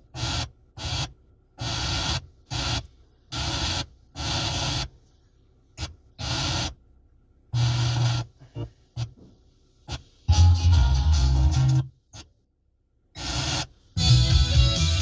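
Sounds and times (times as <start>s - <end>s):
car radio tuning bursts: 0.0s - 5.0s, 5.8s - 6.8s, 7.5s - 12.4s, 13.1s - 15.0s
music on radio: 0.2s - 4.9s, 9.9s - 12.3s, 13.2s - 15.0s.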